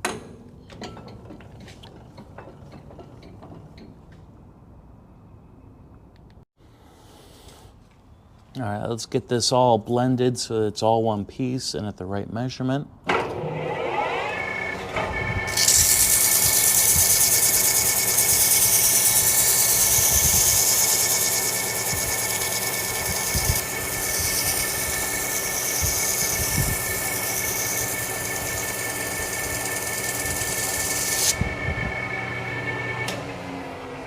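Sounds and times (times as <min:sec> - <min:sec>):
metal lathe whining: 0:13.4 - 0:34.0
sandpaper hissing on spinning shaft: 0:15.6 - 0:31.4.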